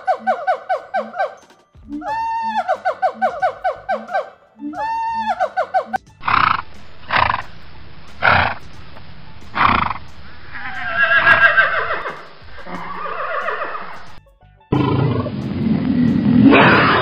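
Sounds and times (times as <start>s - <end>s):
horse snorting: 6.2s - 7.5s, 8.2s - 8.7s, 9.5s - 17.0s
horse neighing: 9.6s - 14.2s, 16.4s - 17.0s.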